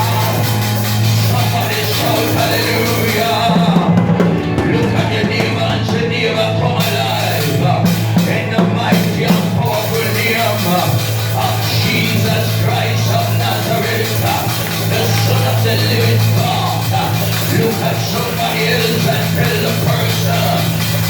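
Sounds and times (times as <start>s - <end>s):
band music: 0.0s - 21.0s
drum kit: 0.0s - 21.0s
steady bass line: 0.0s - 21.0s.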